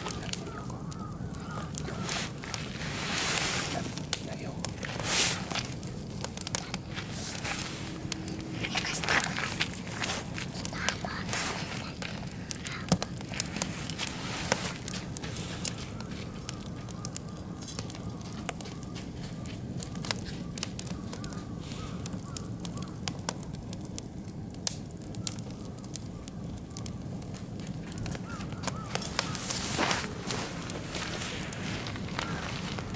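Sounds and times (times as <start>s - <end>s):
fire low rushing: 0.0s - 32.9s
wood fire crackling and popping: 0.0s - 32.9s.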